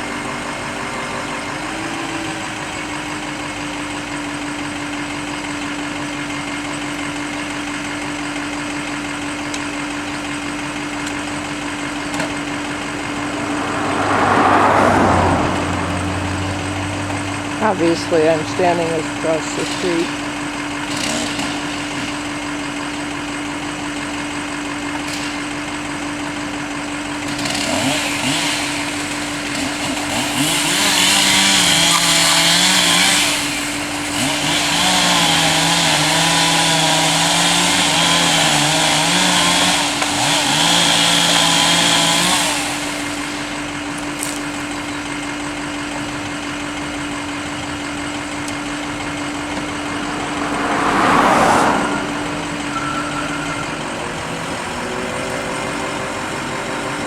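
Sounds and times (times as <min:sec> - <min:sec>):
chainsaw cutting: 0:00.0 - 0:57.0
truck engine idling: 0:00.0 - 0:57.0
loud whoosh: 0:12.0 - 0:17.6, 0:48.8 - 0:55.1.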